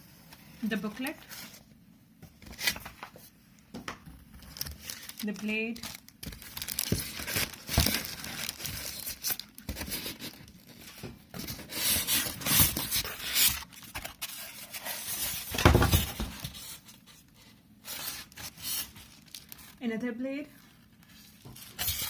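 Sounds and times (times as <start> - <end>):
plastic packaging rustling: 4.3 - 19.8, 20.5 - 22.0.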